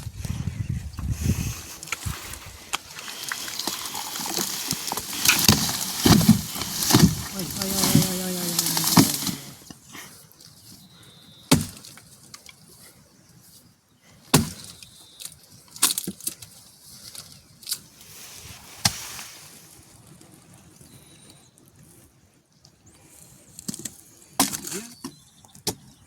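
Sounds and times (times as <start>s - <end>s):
axe chopping wood: 11.5s - 11.8s, 14.3s - 14.7s.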